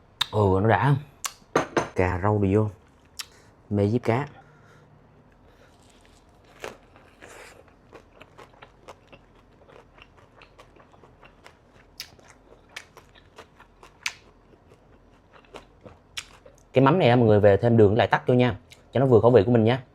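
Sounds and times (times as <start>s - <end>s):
chewing and crunching: 5.3s - 16.7s.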